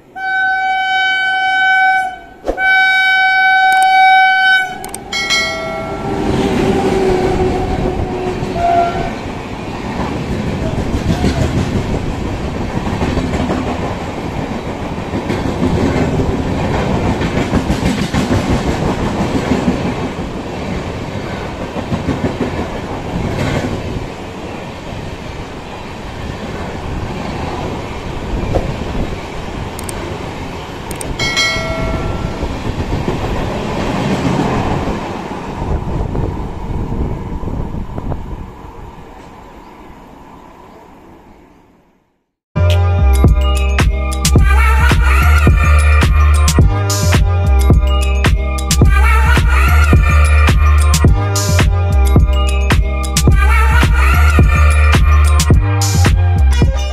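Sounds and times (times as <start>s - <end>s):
train horn blast: 0.2s - 9.2s
train passing with wheel clatter: 4.6s - 41.9s.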